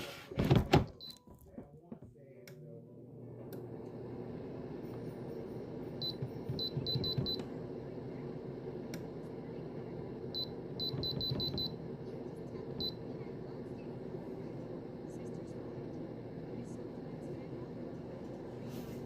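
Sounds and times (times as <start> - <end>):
steady low hum: 2.2 - 19.0
control panel beeping: 6.0 - 7.5, 10.4 - 11.8.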